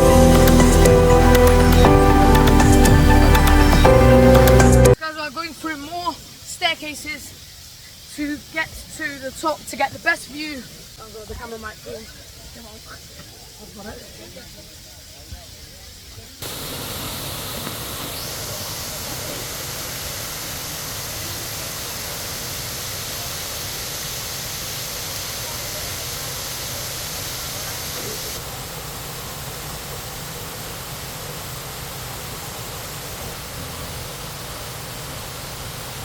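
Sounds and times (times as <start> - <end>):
waterfall rushing: 0.0 - 5.0, 16.4 - 36.0.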